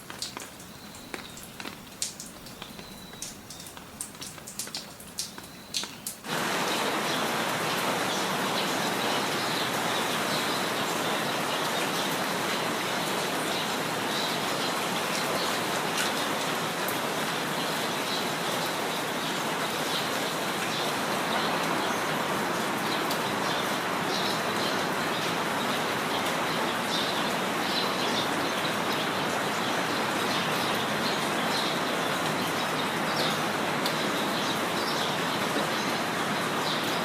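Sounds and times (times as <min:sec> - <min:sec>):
water drips: 0:00.0 - 0:06.4
steady rain falling: 0:00.0 - 0:37.0
faint bird chirps: 0:02.4 - 0:03.8.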